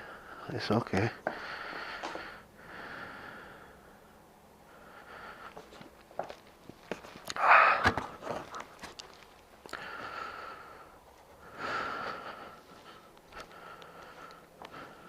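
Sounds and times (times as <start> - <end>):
man exhaling and sighing: 7.3 - 8.2.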